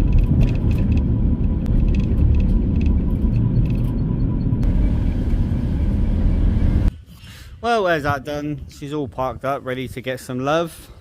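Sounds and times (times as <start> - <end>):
van engine and road rumble: 0.0 - 6.9.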